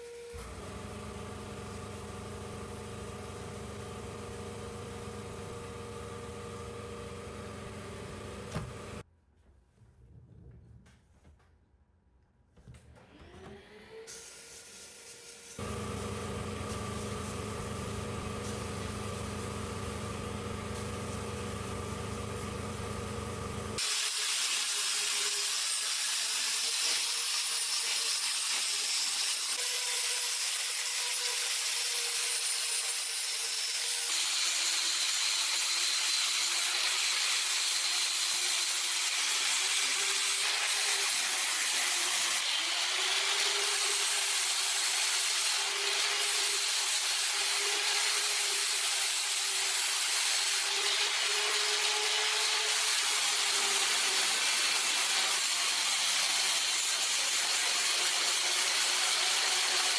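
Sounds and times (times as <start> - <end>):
power tool humming: 0.0 - 9.0, 13.2 - 59.9
abrasive hiss on metal: 14.1 - 15.6.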